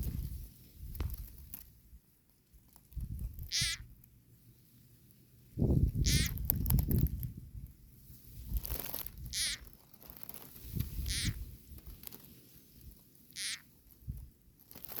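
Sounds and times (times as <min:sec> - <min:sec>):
frog distress scream: 0:03.5 - 0:03.9, 0:06.0 - 0:06.4, 0:09.2 - 0:09.7, 0:11.0 - 0:11.4, 0:13.3 - 0:13.7.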